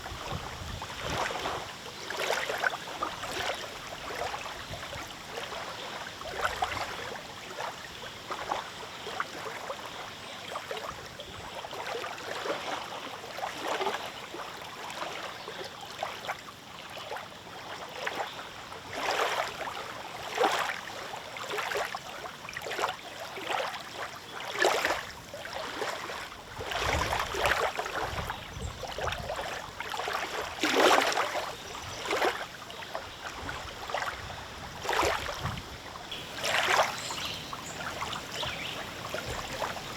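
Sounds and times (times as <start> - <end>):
wind rumble on microphone: 0.0 - 1.7, 26.6 - 29.4, 33.4 - 39.9
waves lapping and splashing: 0.0 - 10.9, 15.9 - 39.9.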